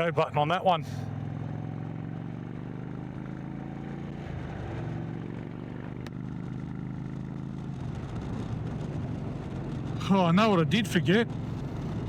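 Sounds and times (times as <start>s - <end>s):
motorcycle engine pulling away: 1.1s - 10.0s.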